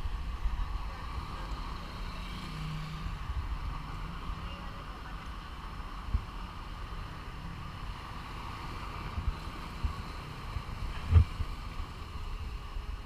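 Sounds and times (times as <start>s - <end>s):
wind buffeting microphone: 8.1s - 13.0s.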